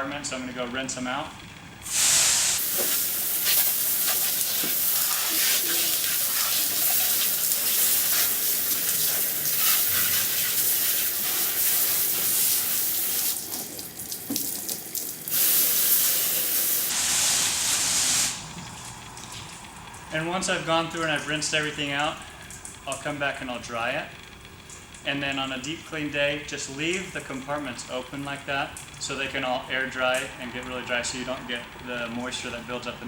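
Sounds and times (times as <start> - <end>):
water spraying hard: 1.9 - 18.5.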